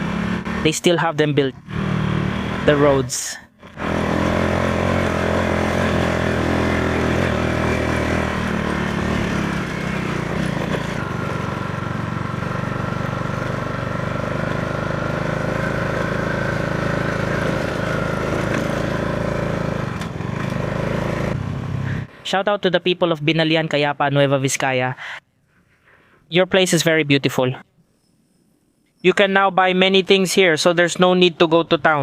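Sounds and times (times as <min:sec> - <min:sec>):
motorcycle engine running: 0:00.0 - 0:22.2.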